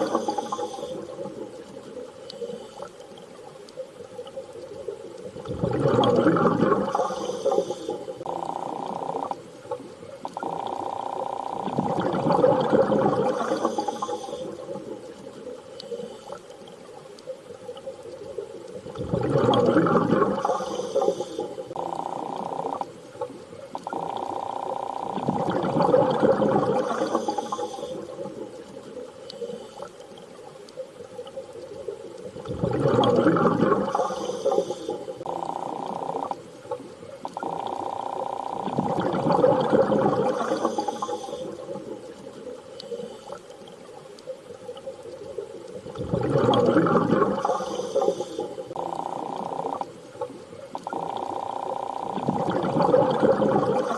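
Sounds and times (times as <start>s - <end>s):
underwater water washes: 0.0s - 53.9s.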